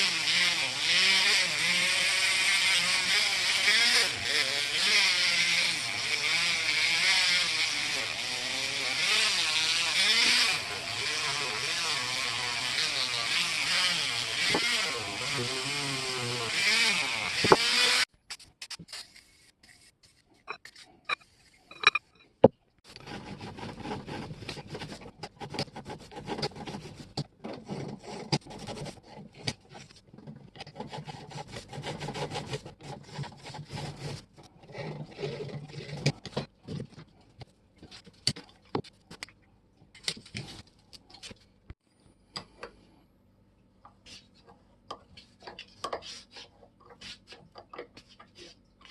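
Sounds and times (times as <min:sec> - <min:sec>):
small power tool running: 0:00.0 - 0:18.1
rubbing and scraping on metal: 0:18.9 - 0:38.2, 0:45.2 - 0:48.9.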